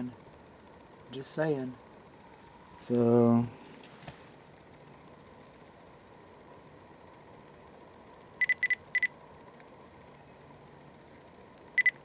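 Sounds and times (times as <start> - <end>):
faint background hum: 0.0 - 12.0
electronic double beeps: 8.4 - 9.1.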